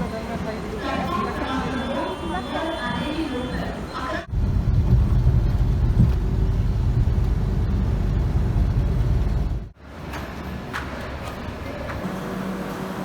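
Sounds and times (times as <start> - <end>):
vehicle engine rumble: 4.2 - 13.0.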